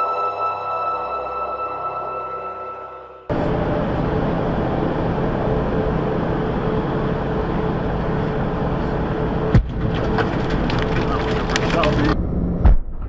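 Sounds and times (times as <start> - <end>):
car road and engine noise: 3.3 - 12.7.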